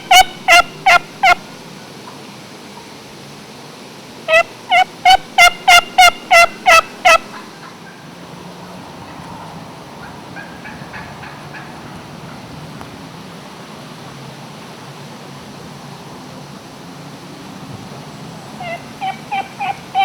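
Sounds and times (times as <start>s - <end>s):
turkey call hen yelps: 0.0s - 1.4s, 4.3s - 8.0s, 18.6s - 20.0s.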